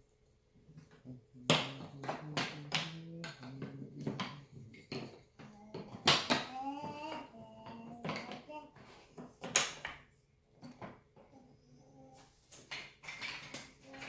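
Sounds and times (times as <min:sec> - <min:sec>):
wooden toy track pieces clacking: 0:00.9 - 0:10.0, 0:12.6 - 0:14.0.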